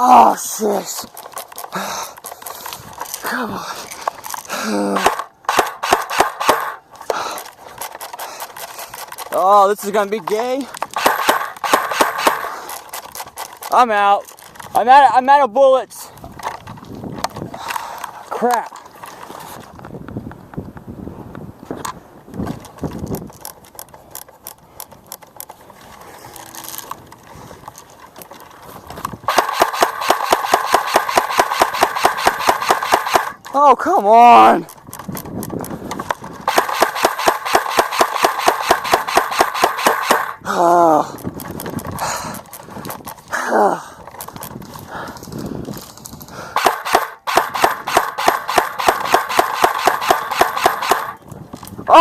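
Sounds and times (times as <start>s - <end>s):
paintball marker rapid firing: 4.9s - 7.2s, 10.2s - 13.5s, 29.3s - 33.5s, 35.8s - 40.5s, 46.6s - 51.2s.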